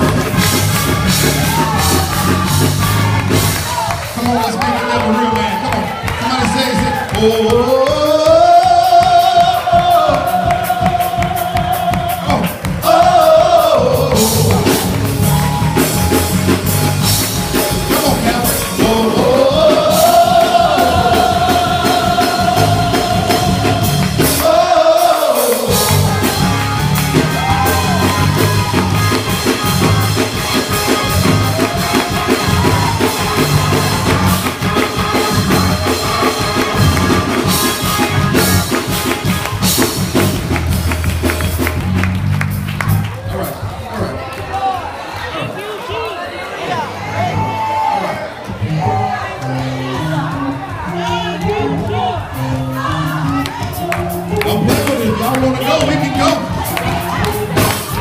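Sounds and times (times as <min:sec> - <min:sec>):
drum kit beat: 0:00.0 - 0:43.7, 0:49.8 - 0:58.0
person singing: 0:06.6 - 0:15.0, 0:17.9 - 0:26.4, 0:48.6 - 0:58.0.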